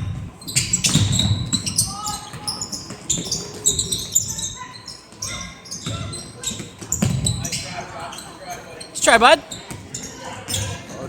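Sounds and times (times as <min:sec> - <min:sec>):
basketball bouncing on court: 0:00.1 - 0:07.6, 0:09.5 - 0:10.7
shoe squeaks: 0:00.4 - 0:11.0.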